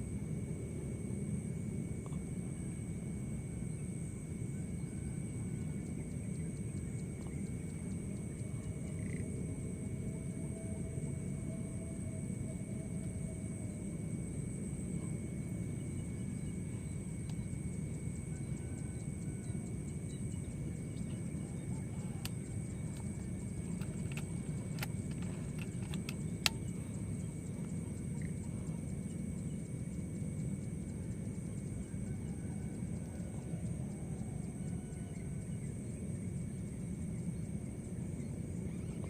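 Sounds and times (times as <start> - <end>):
clicks: 23.7 - 26.7.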